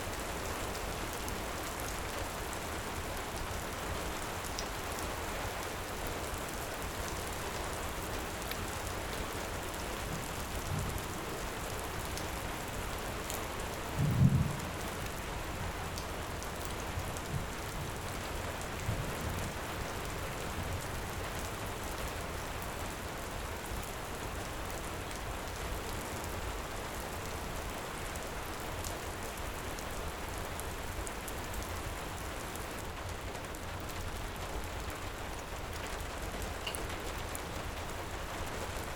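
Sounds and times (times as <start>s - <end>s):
heavy rain: 0.0s - 38.9s
low rumble of thunder: 13.9s - 15.2s.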